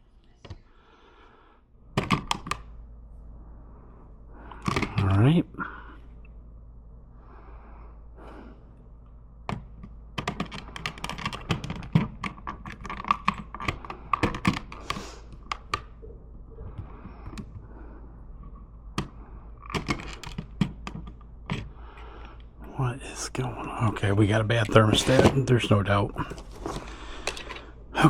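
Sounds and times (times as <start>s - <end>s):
hands handling small hard parts: 9.5s - 17.6s, 18.4s - 21.7s, 24.5s - 27.8s.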